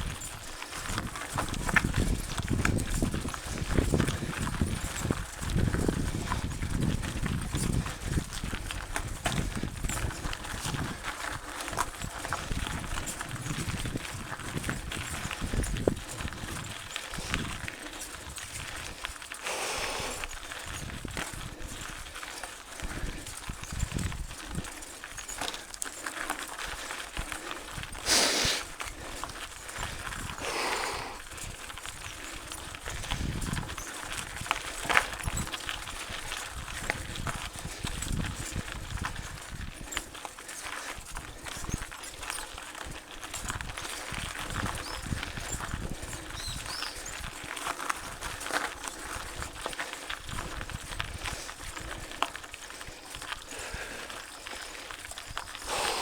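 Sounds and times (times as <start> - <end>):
bike rattling and knocking: 0.0 - 19.4, 20.1 - 28.0, 31.2 - 56.0
tyre and wind rumble: 0.0 - 25.8, 26.6 - 40.2, 41.1 - 54.1.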